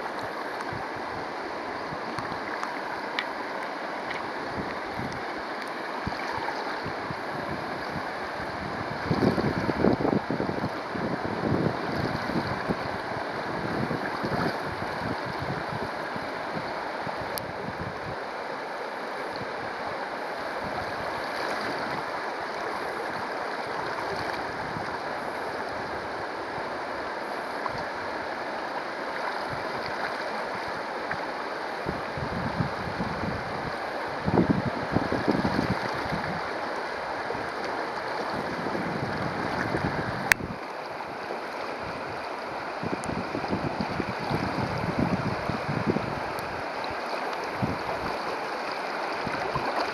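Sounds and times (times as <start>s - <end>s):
water babbling over stones: 0.0s - 49.9s
wind buffeting microphone: 6.0s - 18.2s, 31.9s - 36.5s, 38.2s - 40.6s, 42.8s - 46.7s, 47.5s - 48.2s.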